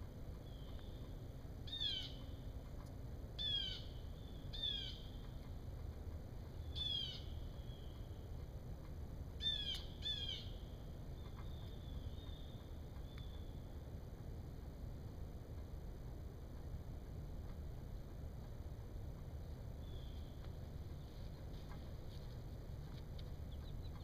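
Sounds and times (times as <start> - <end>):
fainter bird calls: 0.4 - 2.5, 3.4 - 5.5, 6.5 - 8.3, 9.4 - 13.8, 19.7 - 22.0.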